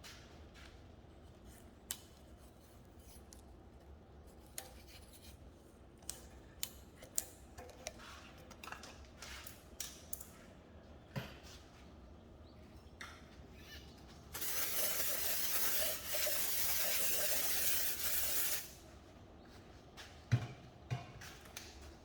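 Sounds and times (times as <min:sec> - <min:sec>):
pressurized air hiss: 0:14.4 - 0:18.8.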